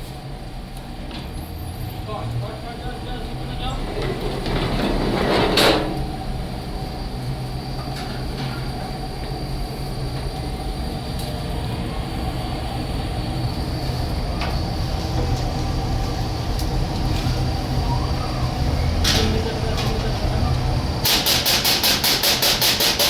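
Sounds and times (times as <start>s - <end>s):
vehicle engine rumbling: 0.0s - 21.3s.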